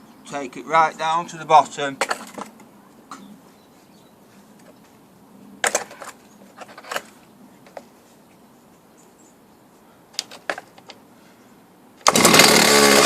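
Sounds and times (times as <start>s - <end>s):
handling clicks and knocks: 2.0s - 3.3s, 5.6s - 8.0s, 10.1s - 11.0s.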